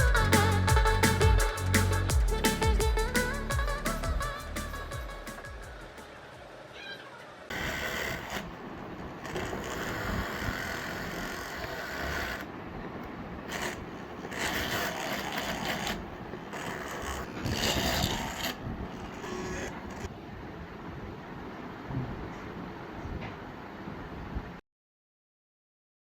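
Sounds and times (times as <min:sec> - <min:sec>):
hand drill gear and scrape noise: 0:07.5 - 0:08.6, 0:09.2 - 0:12.5, 0:13.5 - 0:20.1.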